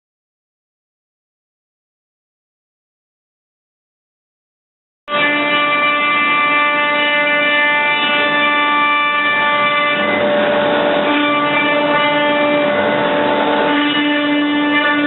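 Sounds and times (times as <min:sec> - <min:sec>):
rough cutting noise: 0:07.8 - 0:15.0
router spindle whining: 0:07.8 - 0:15.0.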